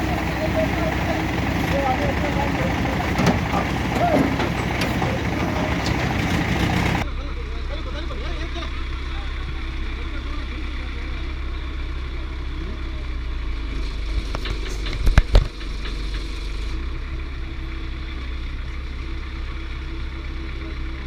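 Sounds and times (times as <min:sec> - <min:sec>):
heavy vehicle engine idling: 0:00.0 - 0:21.0
sharp metallic knocks: 0:00.3 - 0:07.0.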